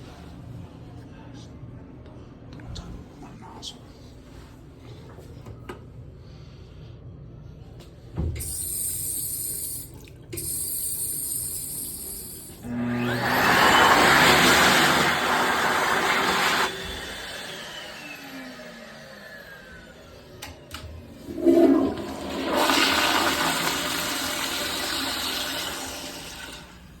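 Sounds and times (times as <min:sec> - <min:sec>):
toilet flushing: 0:08.3 - 0:18.3, 0:19.1 - 0:27.0.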